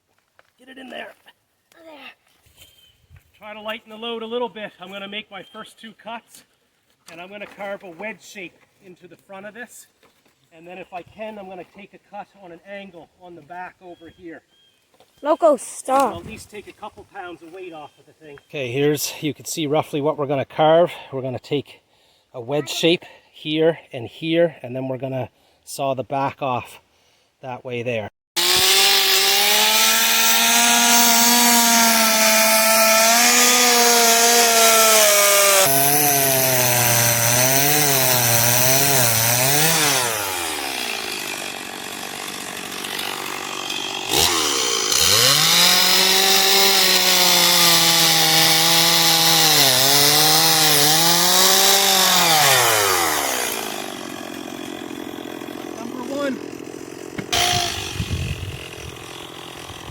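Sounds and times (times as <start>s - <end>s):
chainsaw cutting wood: 15.2s - 16.3s, 28.4s - 59.9s.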